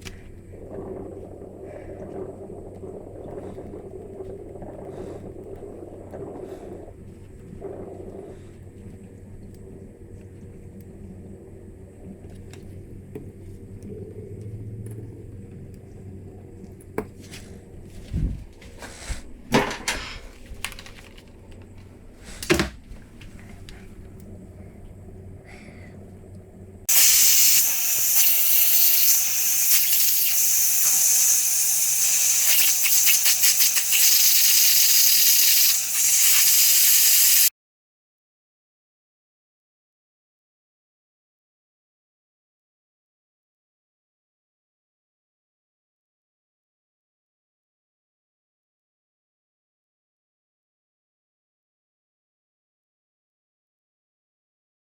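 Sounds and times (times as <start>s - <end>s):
low background hum: 0.0s - 27.0s
spray hissing: 26.9s - 37.5s.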